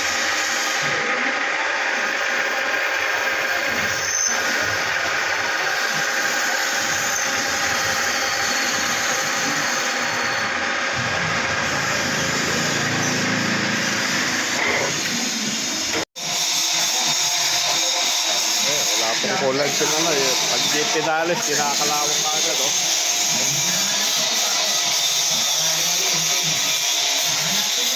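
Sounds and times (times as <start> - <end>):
machine whining tones: 0.0 - 16.0
machinery running: 0.0 - 16.0.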